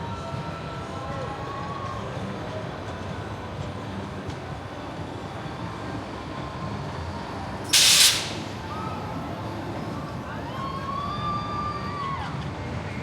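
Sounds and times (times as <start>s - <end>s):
sharp hiss of released air: 7.7s - 8.8s.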